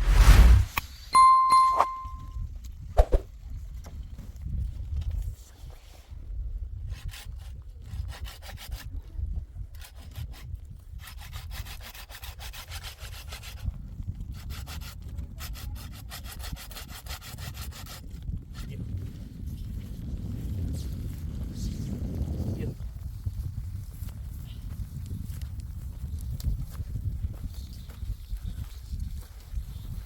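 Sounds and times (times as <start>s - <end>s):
hand saw cutting wood: 7.0s - 8.9s, 9.7s - 13.7s, 14.3s - 18.0s.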